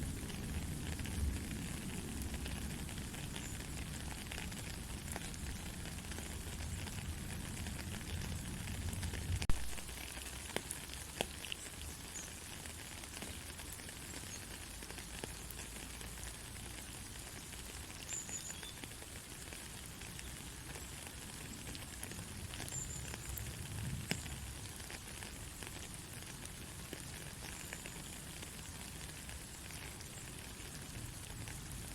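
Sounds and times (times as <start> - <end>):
soft rain hiss: 0.0 - 31.9.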